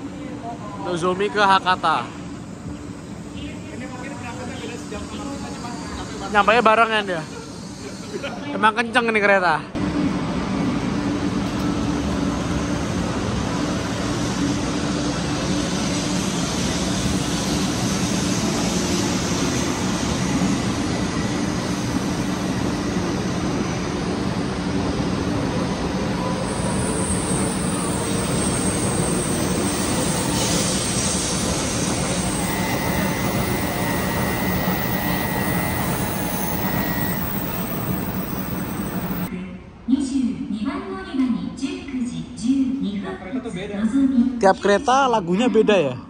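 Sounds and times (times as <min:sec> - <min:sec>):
train rushing noise with hum: 0:09.8 - 0:39.3
faint high whine: 0:26.2 - 0:39.3.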